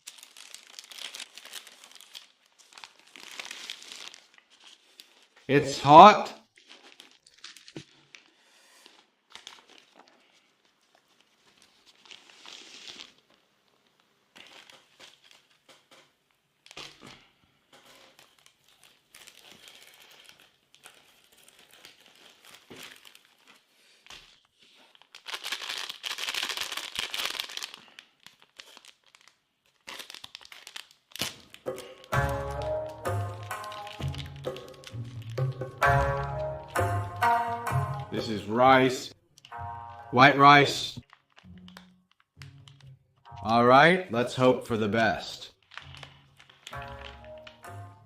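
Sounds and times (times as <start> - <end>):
food pouches crinkling: 0.0 - 43.6, 45.0 - 48.0
music: 31.7 - 38.4, 39.5 - 40.2, 41.4 - 43.6, 45.7 - 48.0.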